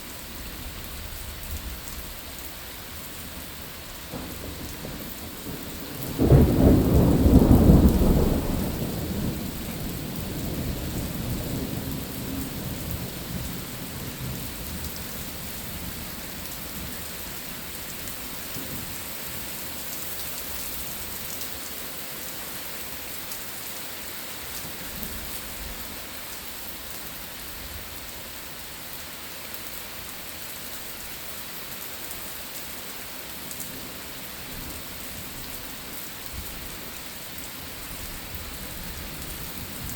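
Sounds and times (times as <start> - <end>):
steady rain: 0.0 - 39.9
thunder rumbling: 3.9 - 17.1.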